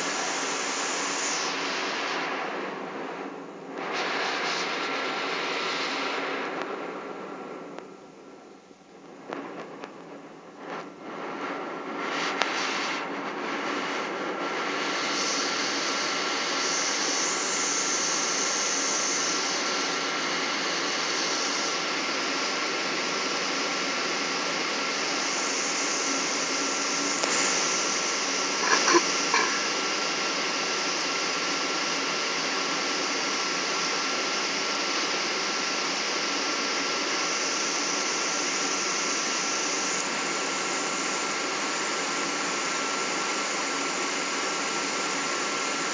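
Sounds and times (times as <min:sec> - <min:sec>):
jet engines roaring in cabin: 0:00.0 - 0:44.4
high engine whine: 0:06.4 - 0:30.1.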